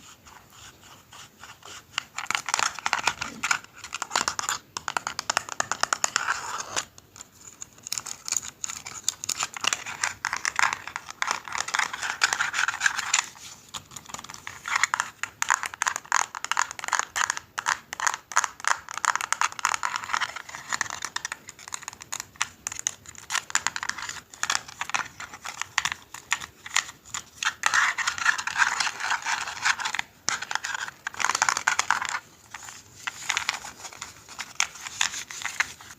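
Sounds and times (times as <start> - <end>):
rapid clicking and scratching: 7.5 - 35.9.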